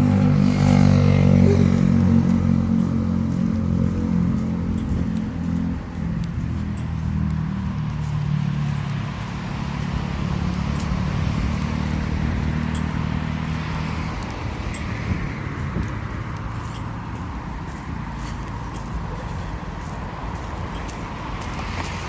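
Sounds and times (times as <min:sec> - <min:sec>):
road noise: 0:00.0 - 0:22.0
vehicle engine hum: 0:00.0 - 0:22.0.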